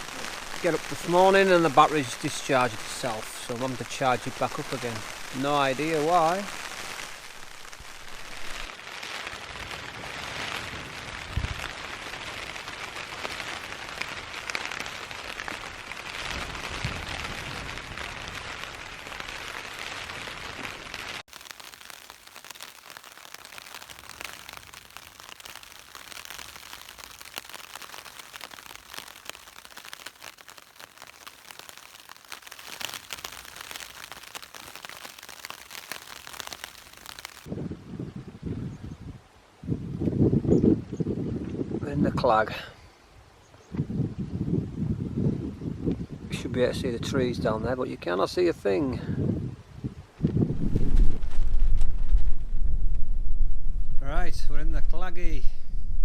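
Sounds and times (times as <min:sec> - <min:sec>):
rain pattering on tent fabric: 0:00.0 - 0:37.6, 0:50.1 - 0:52.6.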